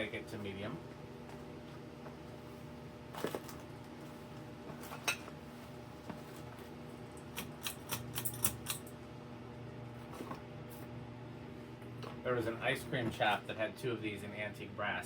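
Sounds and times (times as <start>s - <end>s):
ceiling fan motor humming: 0.0s - 15.0s.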